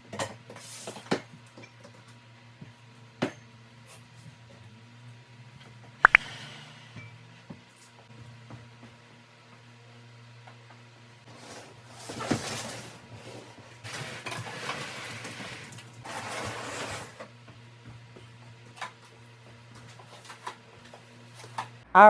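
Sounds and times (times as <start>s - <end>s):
objects sliding and rustling: 11.3s - 17.2s.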